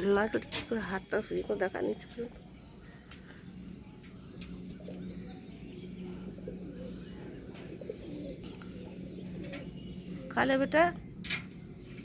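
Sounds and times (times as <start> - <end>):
bird cooing: 4.4 - 10.5.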